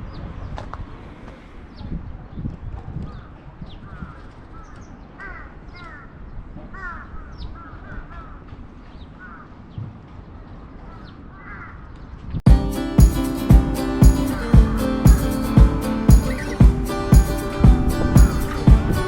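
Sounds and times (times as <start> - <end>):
crows cawing: 3.9 - 8.5, 9.2 - 9.6, 10.9 - 11.9
music: 12.5 - 19.0
small birds chirping: 13.0 - 19.0.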